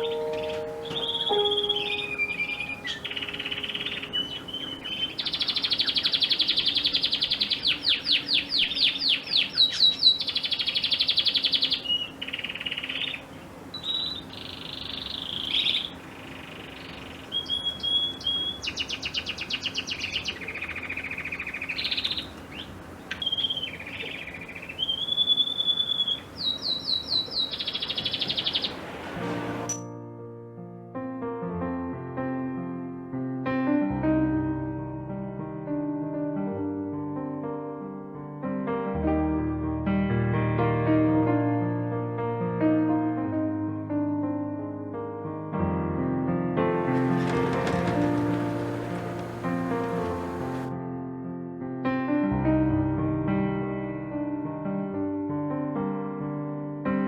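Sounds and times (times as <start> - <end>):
songbird singing: 0.0 - 30.0, 46.7 - 50.7.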